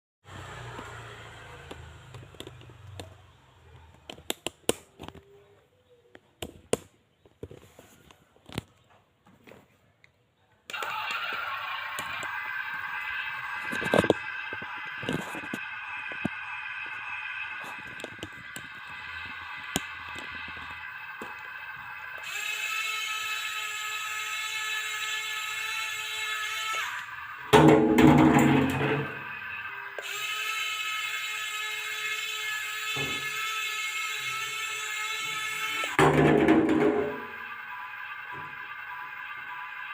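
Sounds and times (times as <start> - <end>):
low motor hum: 0.3 - 4.1
sharp plastic clicks and knocks: 3.8 - 5.3
hydraulic pump whining: 10.7 - 39.9.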